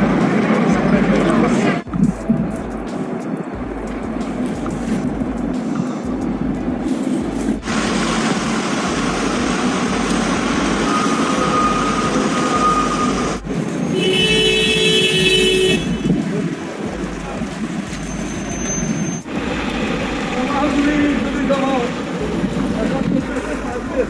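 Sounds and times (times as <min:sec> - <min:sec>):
street traffic: 0:00.0 - 0:24.0
vehicle horn: 0:10.8 - 0:16.2.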